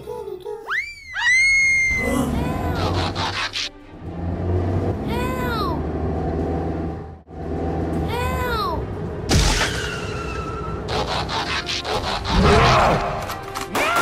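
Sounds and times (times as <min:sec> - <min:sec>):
background music: 0:01.9 - 0:14.0
loud cartoon crash: 0:09.3 - 0:10.5.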